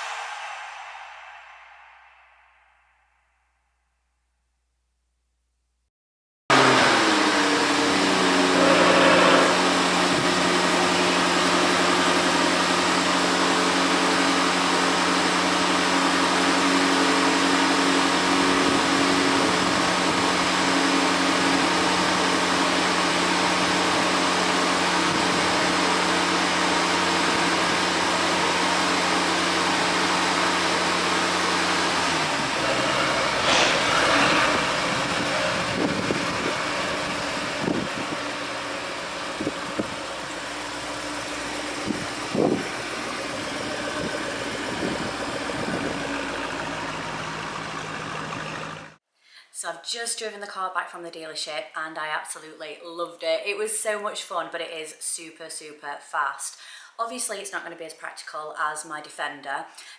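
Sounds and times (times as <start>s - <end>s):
brief loud noise: 0.0s - 3.2s, 33.0s - 35.0s
car engine running steadily: 6.5s - 49.0s.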